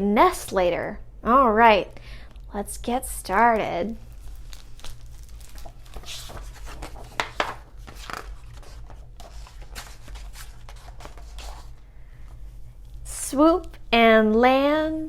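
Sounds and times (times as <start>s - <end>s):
book pages rustling: 3.6s - 13.0s.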